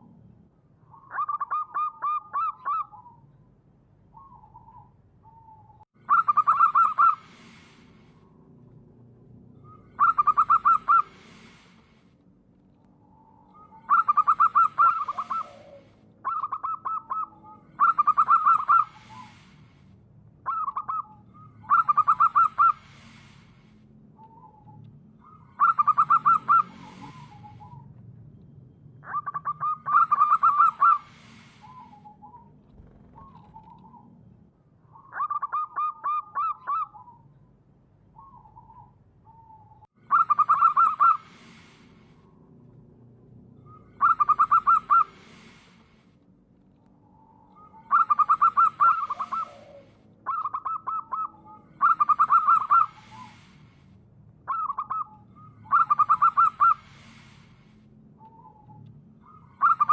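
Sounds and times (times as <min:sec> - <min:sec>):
dove cooing: 0:04.2 - 0:07.8, 0:09.8 - 0:11.7, 0:13.5 - 0:19.5, 0:20.4 - 0:23.4, 0:25.6 - 0:27.8, 0:29.0 - 0:34.0, 0:38.2 - 0:41.8, 0:43.7 - 0:45.7, 0:47.6 - 0:53.5, 0:54.5 - 0:57.3.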